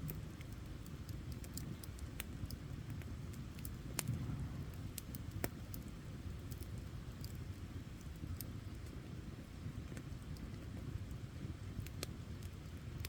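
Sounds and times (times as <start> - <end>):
campfire rumble: 0.0 - 13.0
fire crackling and popping: 0.0 - 13.0.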